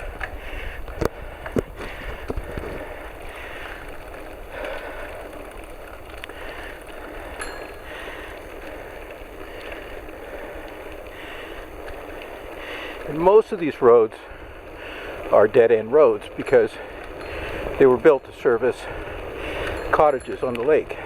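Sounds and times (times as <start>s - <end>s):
wind on microphone: 0.0s - 4.1s
bicycle clicks: 0.0s - 21.0s
bicycle tyres rolling: 0.0s - 21.0s.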